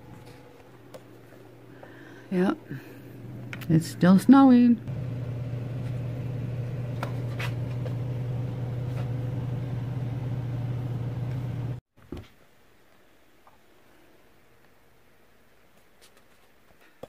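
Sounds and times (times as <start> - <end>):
motor humming: 4.9 - 11.8.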